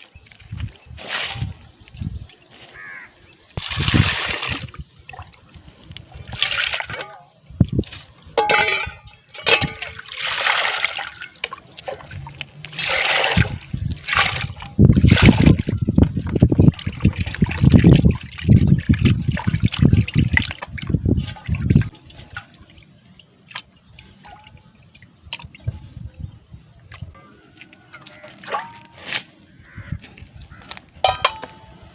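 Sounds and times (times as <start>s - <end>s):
water sloshing and splashing: 3.5s - 31.7s
water trickling and pouring: 3.6s - 29.0s
water dripping: 8.4s - 29.0s.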